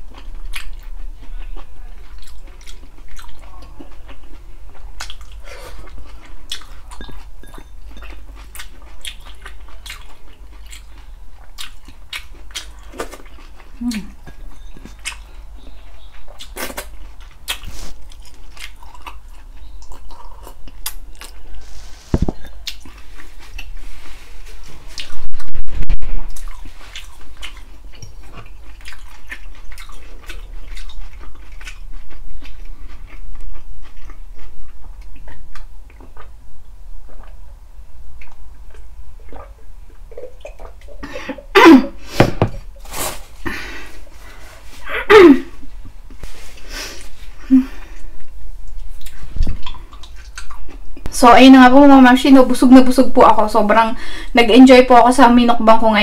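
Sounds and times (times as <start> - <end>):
wet chewing and lip-smacking: 0.0 - 21.5, 22.4 - 23.8, 24.9 - 36.4, 37.0 - 37.5, 38.2 - 41.0, 47.8 - 51.1.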